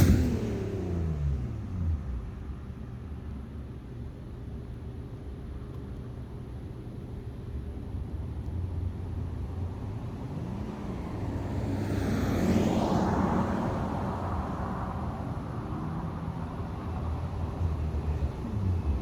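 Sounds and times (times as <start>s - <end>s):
car driving past: 0.0s - 2.6s, 10.2s - 19.0s
low engine hum: 0.0s - 19.0s.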